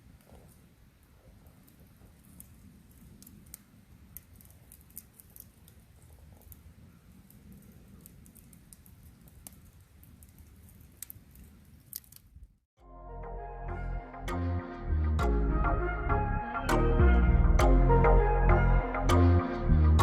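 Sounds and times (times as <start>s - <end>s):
campfire crackling: 0.0s - 12.7s
low rumble: 12.8s - 20.0s.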